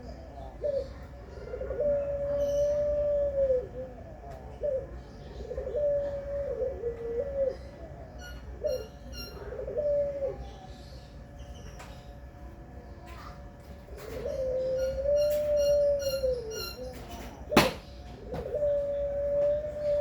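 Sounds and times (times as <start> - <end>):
dove cooing: 0.0 - 11.9, 13.0 - 20.0
small bird chirping: 8.2 - 9.5, 14.0 - 18.1.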